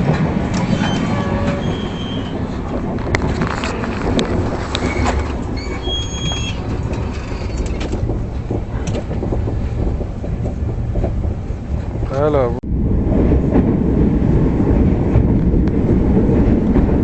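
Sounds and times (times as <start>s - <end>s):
train wheels rumbling on rails: 0.0s - 17.0s
high wheel squeal: 0.6s - 2.4s, 4.8s - 8.0s.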